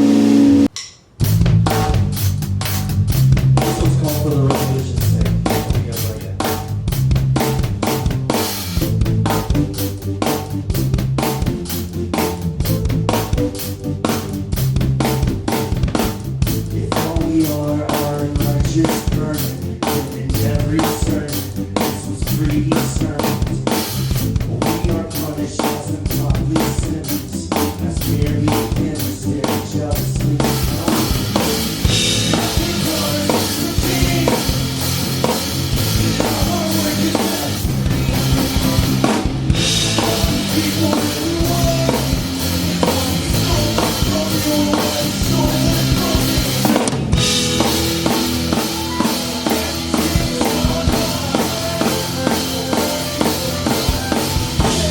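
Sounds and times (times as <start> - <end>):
cymbals crashing: 0.0 - 1.1, 47.2 - 49.9
band playing live: 0.0 - 54.9
drum kit beat: 0.0 - 54.9.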